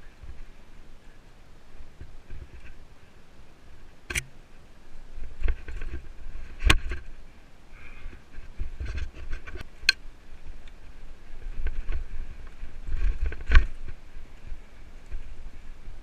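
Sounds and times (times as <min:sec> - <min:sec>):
wind on microphone: 0:07.9 - 0:16.0.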